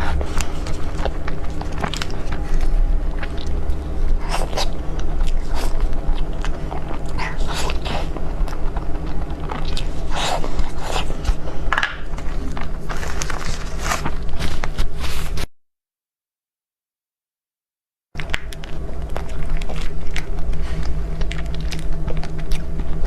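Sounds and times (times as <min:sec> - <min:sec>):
wet chewing and bites: 0:00.0 - 0:15.0, 0:18.2 - 0:23.0
steady low hum: 0:00.0 - 0:15.5, 0:18.2 - 0:23.0.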